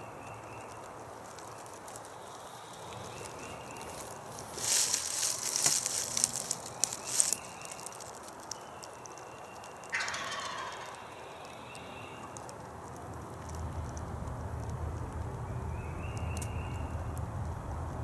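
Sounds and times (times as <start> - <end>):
crackles and rustles: 0.0 - 10.8, 11.5 - 18.0
turkey gobbling: 9.9 - 12.5.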